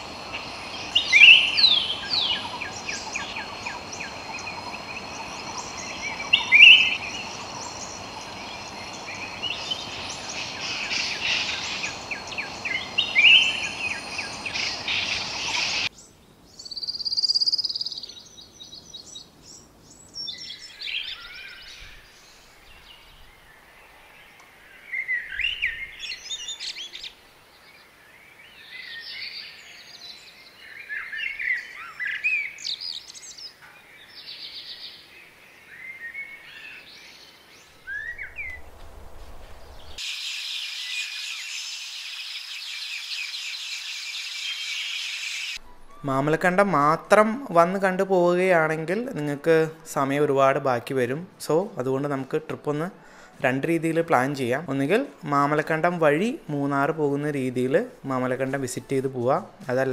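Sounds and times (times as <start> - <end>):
steady high whine: 0.0 - 15.9
birds calling and chirping: 0.0 - 50.2.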